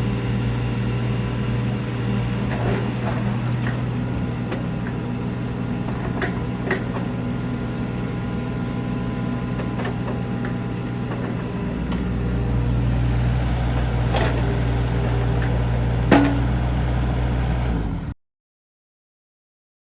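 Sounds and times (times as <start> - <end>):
excavator diesel engine running: 0.0 - 18.1.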